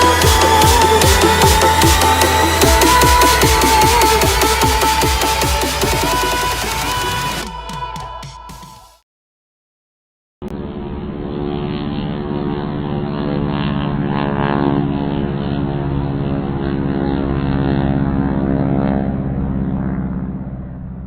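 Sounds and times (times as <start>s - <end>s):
propeller airplane engine droning: 10.6s - 21.0s.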